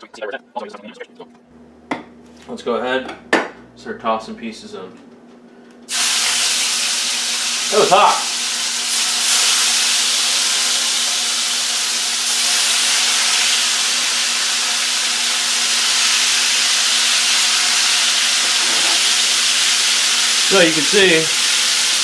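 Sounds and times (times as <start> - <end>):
chicken sizzling in a pan: 5.9 - 22.0.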